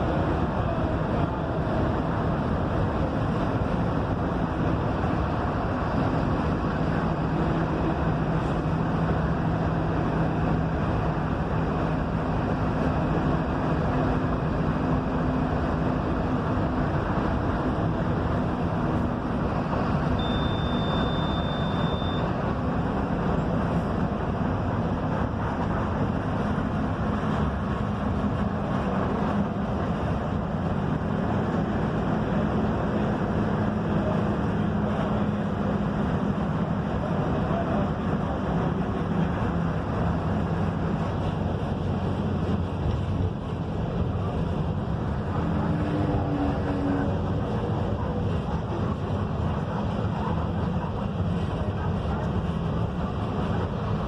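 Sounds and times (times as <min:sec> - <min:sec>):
bus diesel engine drone: 0:00.0 - 0:54.0
road rumble: 0:00.0 - 0:54.0
high beep: 0:20.2 - 0:22.3.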